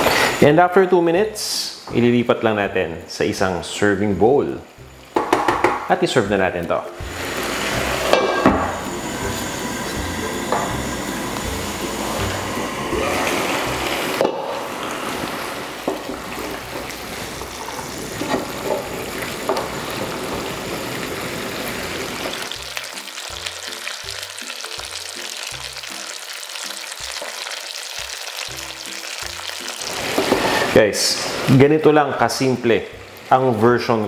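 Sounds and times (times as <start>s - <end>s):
meat sizzling in a pan: 3.6s - 6.2s, 6.9s - 34.0s
wooden spoon knocking against pan: 5.2s - 5.9s.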